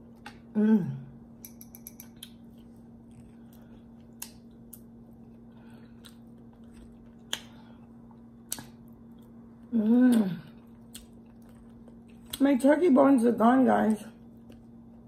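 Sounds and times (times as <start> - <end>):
steady low hum: 0.0 - 15.0
faint chewing with lips closed: 2.1 - 12.5.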